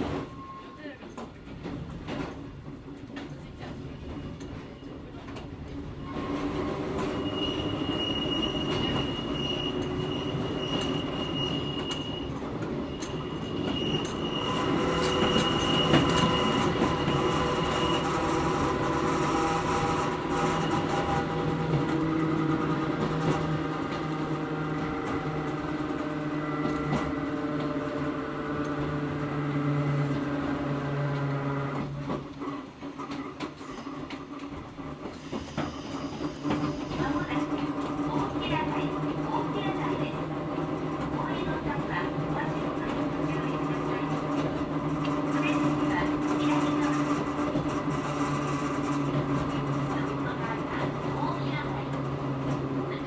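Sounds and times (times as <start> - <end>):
electric train motors humming and whining: 3.4 - 53.0
high thin wheel squeal: 7.0 - 21.4.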